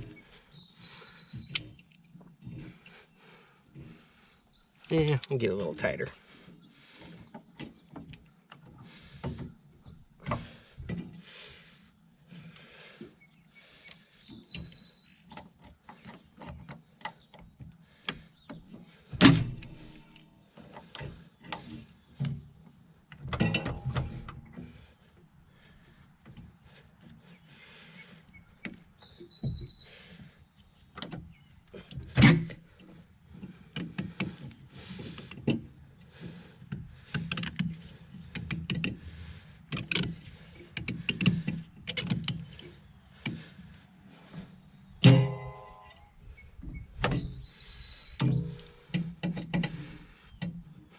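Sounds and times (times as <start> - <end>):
insects trilling: 0.0 - 50.9
tools clicking and clanking: 4.8 - 5.7, 23.1 - 24.4, 39.7 - 43.4, 45.0 - 46.0.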